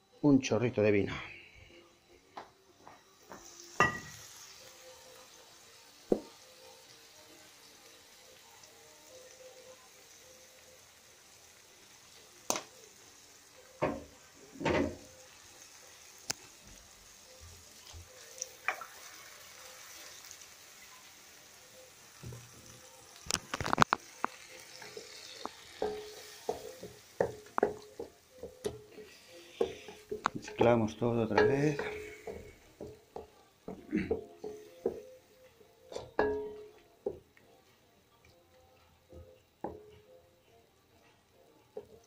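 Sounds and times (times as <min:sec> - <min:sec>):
vegetables sizzling in a pan: 0:02.4 - 0:37.3.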